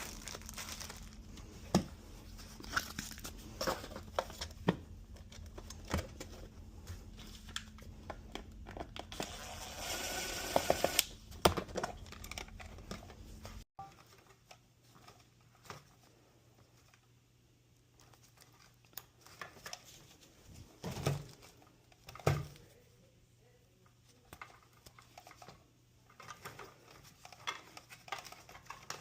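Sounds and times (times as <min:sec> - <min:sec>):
material crinkling and tearing: 0:00.0 - 0:04.4
faint low hum: 0:11.3 - 0:28.8.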